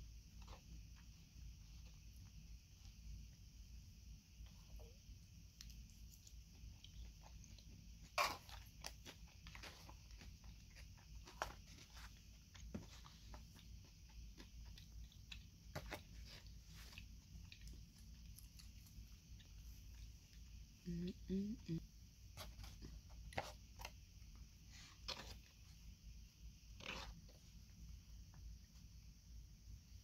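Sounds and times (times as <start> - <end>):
person chewing salad: 13.7 - 20.6.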